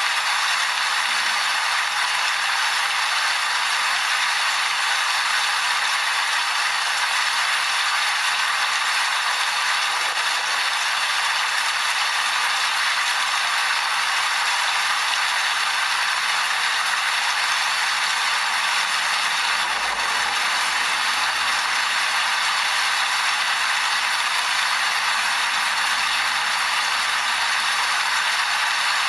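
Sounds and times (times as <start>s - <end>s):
steady dense rain: 0.0s - 29.0s.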